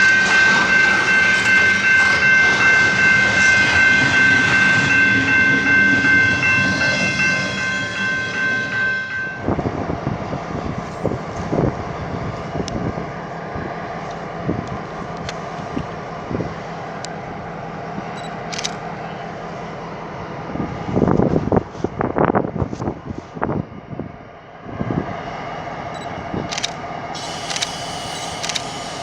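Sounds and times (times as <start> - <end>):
train horn: 0.0 - 9.5
train rumbling: 0.0 - 29.0.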